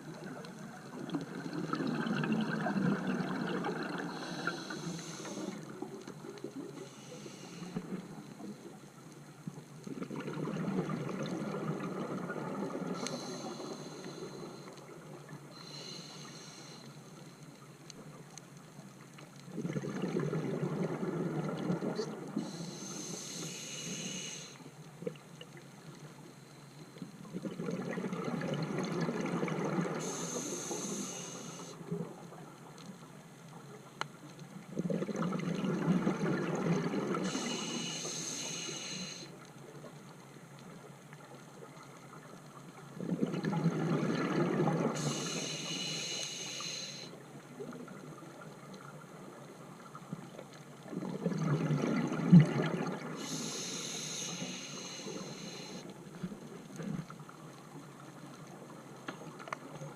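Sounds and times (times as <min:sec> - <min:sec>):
diver inhaling through regulator: 0:04.0 - 0:05.7, 0:06.8 - 0:08.0, 0:13.0 - 0:14.7, 0:15.6 - 0:17.0, 0:22.4 - 0:24.6, 0:30.0 - 0:31.8, 0:37.2 - 0:39.3, 0:44.9 - 0:47.2, 0:53.2 - 0:55.9.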